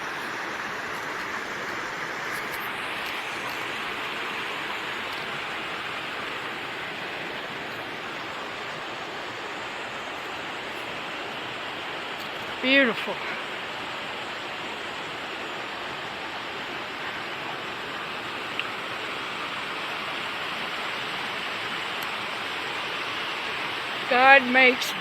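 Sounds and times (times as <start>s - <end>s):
fast-running creek water: 0.0s - 25.0s
waterfall rushing: 0.0s - 25.0s.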